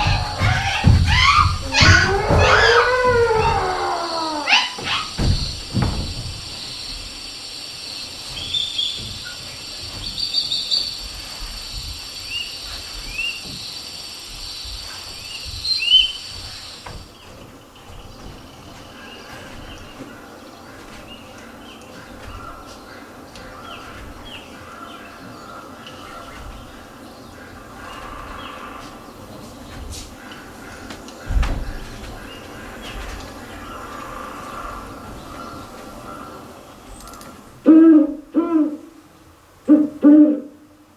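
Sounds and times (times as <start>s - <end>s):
faint shuffling noise: 0.0s - 37.6s
steady hiss: 0.0s - 40.9s.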